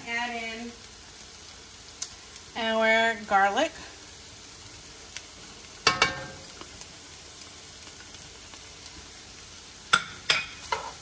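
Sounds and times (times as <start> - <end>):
vegetables sizzling in a skillet: 0.0 - 11.0
metal spatula clanking on pan: 5.8 - 6.4, 9.9 - 11.0.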